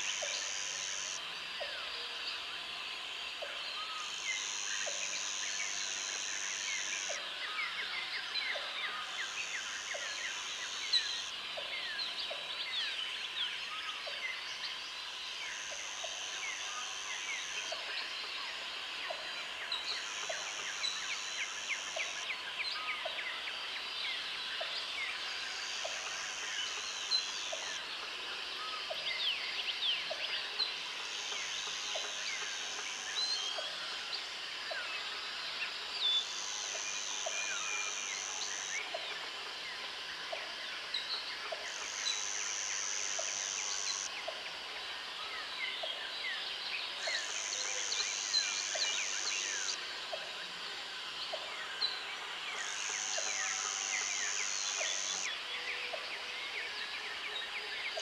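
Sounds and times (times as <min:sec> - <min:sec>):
high insect buzz: 0:00.0 - 0:01.2, 0:41.6 - 0:44.1, 0:52.6 - 0:55.3.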